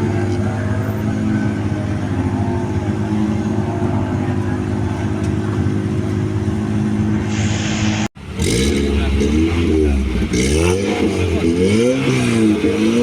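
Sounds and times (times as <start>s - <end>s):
car engine running steadily: 0.0s - 13.0s.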